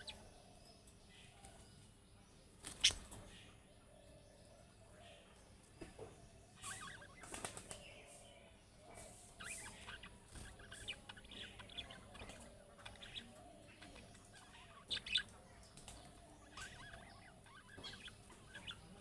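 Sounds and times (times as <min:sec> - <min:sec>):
budgerigars chattering: 0:00.0 - 0:00.3, 0:02.7 - 0:03.2, 0:09.0 - 0:19.0
sharp bird calls: 0:00.0 - 0:01.6, 0:02.6 - 0:04.2, 0:06.4 - 0:19.0.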